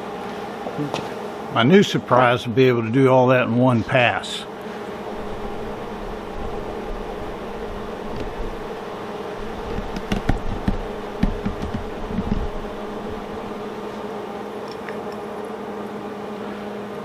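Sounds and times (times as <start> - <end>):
arc welder buzzing: 4.2 - 17.0
welding crackling and pops: 5.2 - 14.0.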